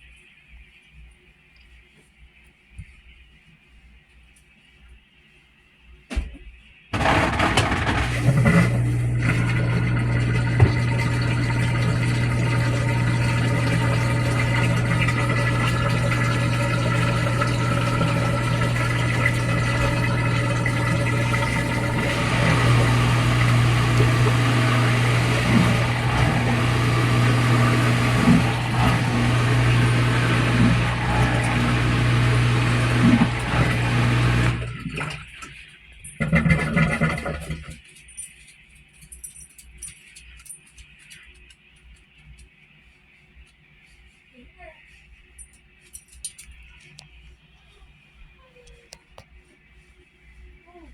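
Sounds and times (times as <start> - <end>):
water rushing out: 7.0 - 35.3
washer drain pump humming: 7.0 - 37.8.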